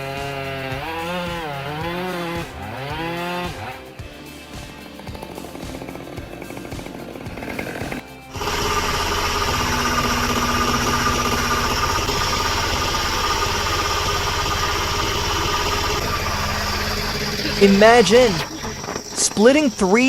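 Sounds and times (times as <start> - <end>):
machine engine running loudly: 0.0 - 20.0
quieter mechanical running sound: 5.0 - 20.0.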